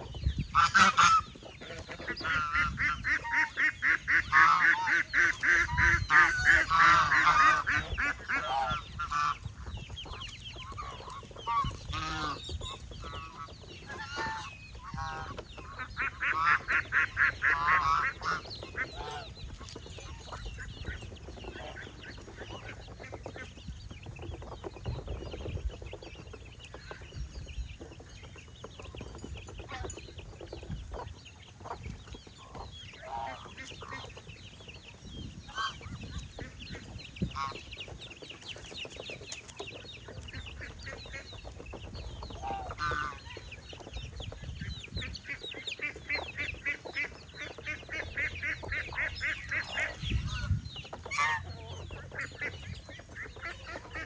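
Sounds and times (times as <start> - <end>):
poultry clucking and calling: 0.0 - 54.0.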